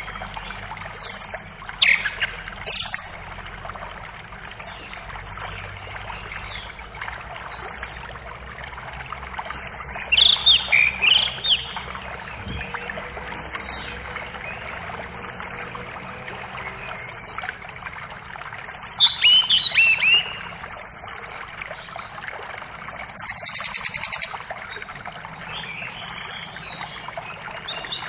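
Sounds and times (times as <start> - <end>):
creek water rushing: 0.0 - 28.0
bird chirps rising and falling: 18.6 - 21.4, 25.6 - 28.0.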